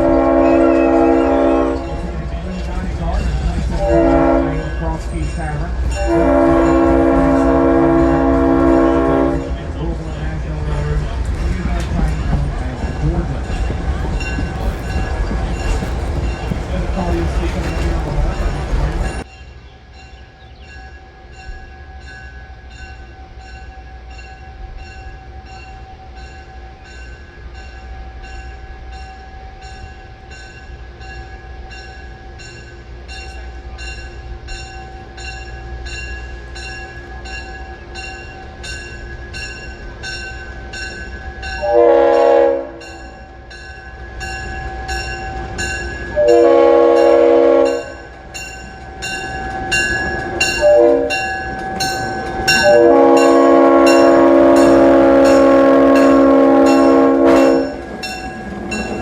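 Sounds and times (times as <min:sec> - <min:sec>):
train horn blasts: 0:00.0 - 0:02.6, 0:03.6 - 0:10.0, 0:41.5 - 0:43.6, 0:44.8 - 0:59.0
locomotive bell ringing: 0:00.0 - 0:59.0
train rumbling: 0:00.0 - 0:59.0.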